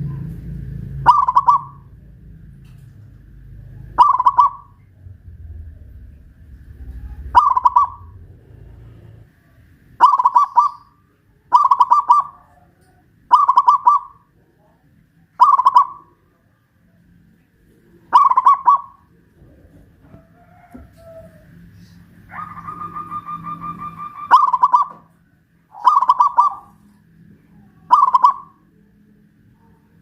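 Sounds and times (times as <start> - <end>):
dove cooing: 0.0 - 2.1, 3.4 - 9.2, 10.0 - 14.3, 15.4 - 16.2, 17.9 - 25.1, 25.7 - 26.9, 27.6 - 28.8.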